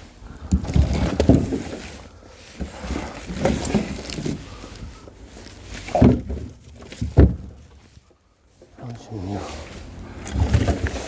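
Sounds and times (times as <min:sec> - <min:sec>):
firewood knocks and thuds: 0:00.4 - 0:01.9, 0:05.8 - 0:07.9.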